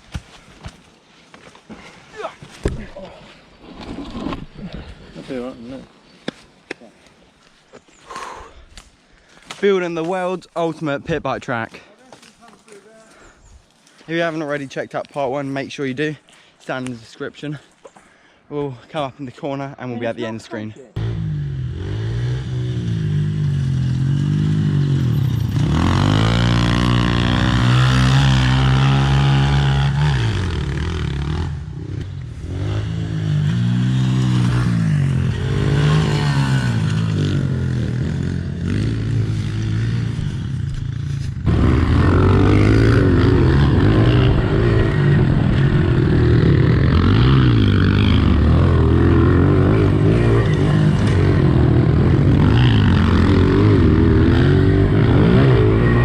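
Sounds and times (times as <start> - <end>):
pit bike engines revving: 21.0 - 56.0.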